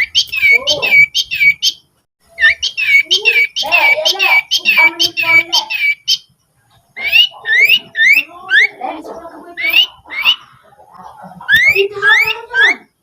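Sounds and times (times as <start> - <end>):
songbird whistling notes: 0.0 - 6.3, 7.0 - 8.8, 11.5 - 12.9
bird chattering: 0.0 - 13.0.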